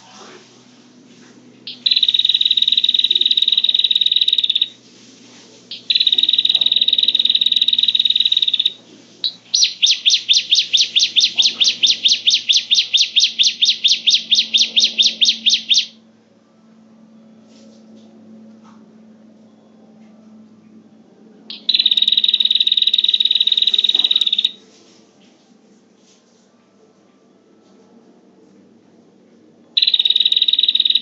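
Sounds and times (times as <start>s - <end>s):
buzzing bird trills: 1.6s - 4.8s, 5.7s - 16.0s, 21.5s - 24.6s, 29.8s - 31.0s
sharp repeated bird notes: 1.7s - 4.8s, 5.7s - 16.0s, 21.5s - 24.6s, 29.8s - 31.0s.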